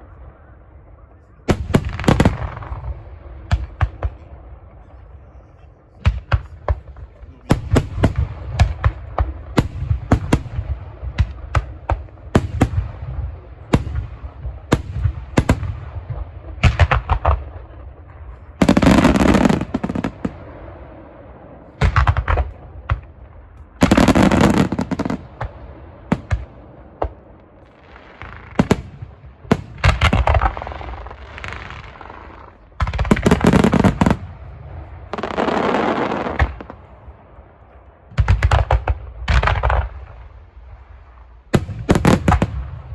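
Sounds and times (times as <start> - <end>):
fireworks exploding: 1.4 - 4.9, 6.0 - 42.9.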